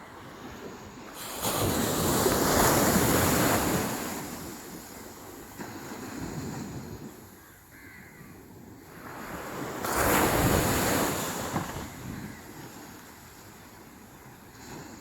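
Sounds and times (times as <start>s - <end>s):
sea waves breaking on beach: 0.0s - 15.0s.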